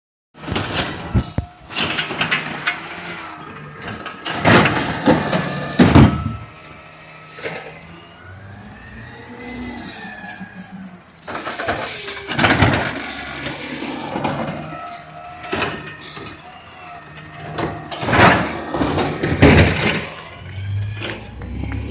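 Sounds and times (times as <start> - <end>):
loud clanks and clatters: 0.4 - 6.4, 11.3 - 21.9
garbage truck engine: 0.4 - 21.9.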